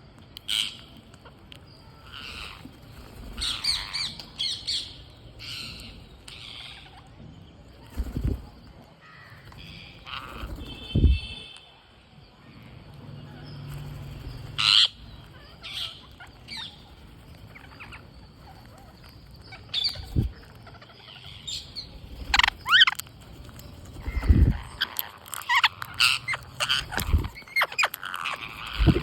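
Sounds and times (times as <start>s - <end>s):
parrots squawking: 2.0s - 2.6s, 3.4s - 7.1s, 9.2s - 10.7s, 14.6s - 16.8s, 17.6s - 23.1s, 24.0s - 29.0s.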